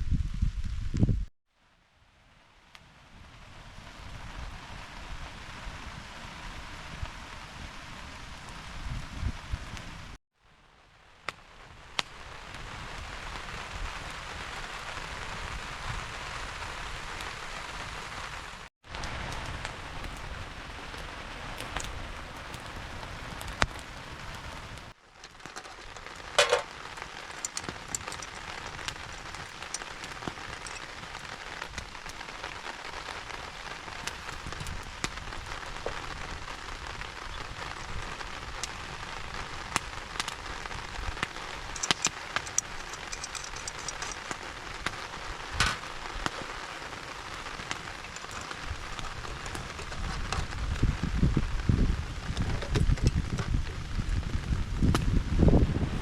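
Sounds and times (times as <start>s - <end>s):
steady rain falling: 1.6s - 56.0s
sharp ticks of raindrops: 11.2s - 55.6s.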